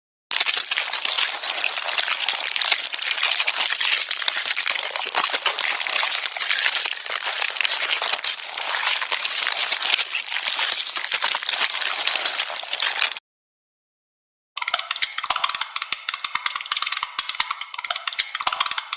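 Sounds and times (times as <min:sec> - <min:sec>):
dense crackling and rustling: 0:00.3 - 0:13.2.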